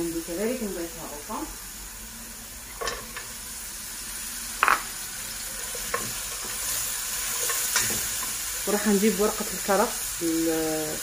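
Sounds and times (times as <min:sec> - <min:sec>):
meat and onion sizzling in oil: 0:00.0 - 0:11.0.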